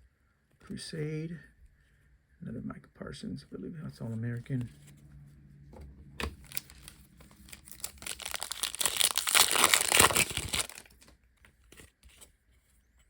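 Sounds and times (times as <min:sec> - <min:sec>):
plastic wrapper crinkling and tearing: 0:06.2 - 0:11.1.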